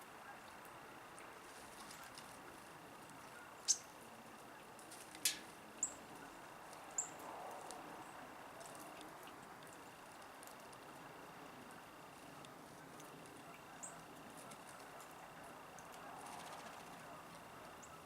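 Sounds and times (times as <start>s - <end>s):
bird chip calls: 3.3s - 4.0s, 12.2s - 18.0s.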